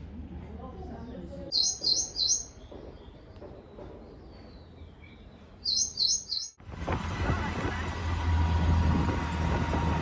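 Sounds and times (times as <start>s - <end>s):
faint outdoor background noise: 0.0s - 10.0s
small bird chirping: 1.5s - 6.6s.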